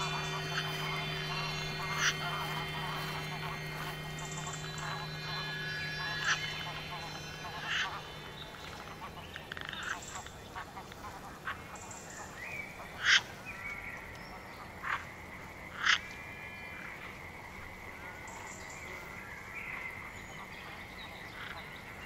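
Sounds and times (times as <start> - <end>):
steady high-pitched tone: 0.0 - 11.4
faint chirps: 0.0 - 22.0.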